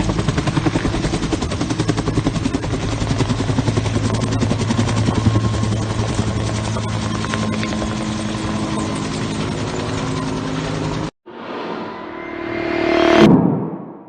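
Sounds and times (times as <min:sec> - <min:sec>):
helicopter rotor beating: 0:00.0 - 0:11.1.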